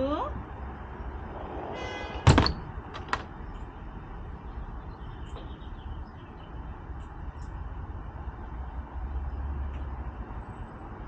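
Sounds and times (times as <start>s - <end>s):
loud thud: 2.3s - 3.3s.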